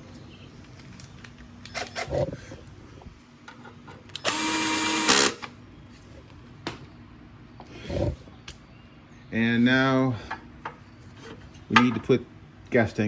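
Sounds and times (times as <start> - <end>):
power drill driving bolt: 4.1 - 5.5.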